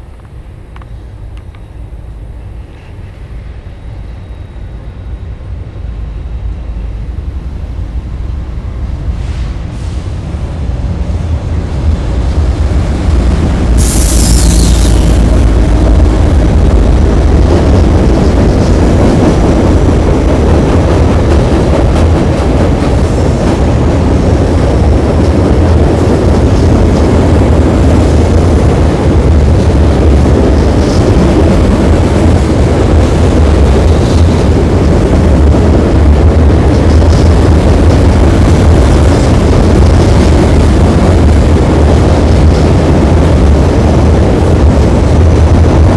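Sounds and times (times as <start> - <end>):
freight train rumbling on bridge: 0.0 - 45.9
high hiss: 13.4 - 15.8.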